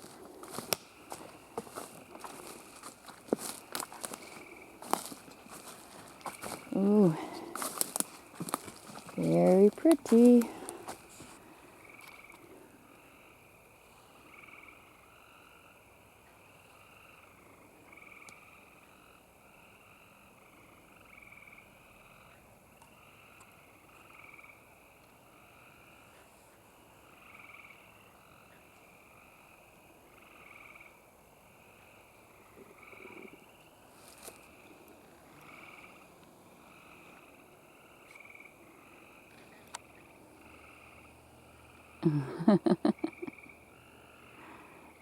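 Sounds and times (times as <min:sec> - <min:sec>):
frogs calling: 0:00.0 - 0:45.0.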